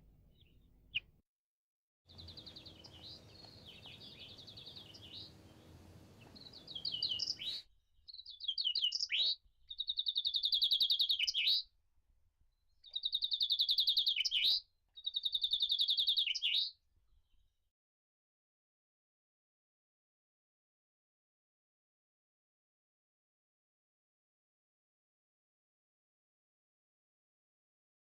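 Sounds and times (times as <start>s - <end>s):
chaffinch singing: 2.1s - 11.6s, 12.8s - 16.7s.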